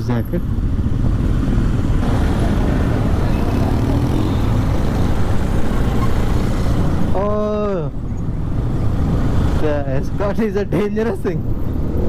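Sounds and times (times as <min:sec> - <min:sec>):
traffic hum: 0:00.0 - 0:12.0.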